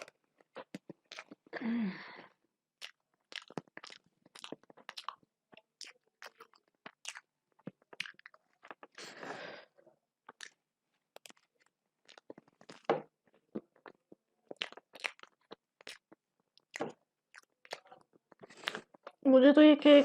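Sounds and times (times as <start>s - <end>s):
wet mouth clicks and smacks: 0.0s - 1.5s, 2.8s - 9.0s, 10.2s - 12.9s, 13.6s - 19.2s
chewing cake: 0.0s - 19.2s.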